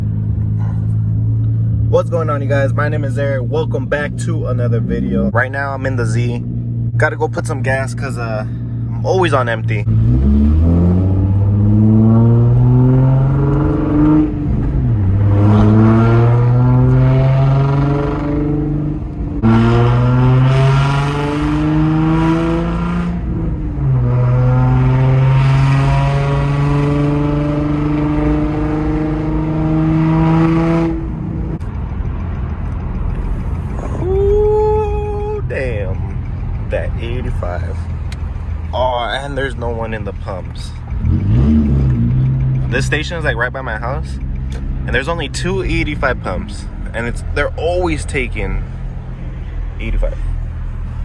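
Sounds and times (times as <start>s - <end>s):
car engine accelerating hard: 0.0s - 51.0s.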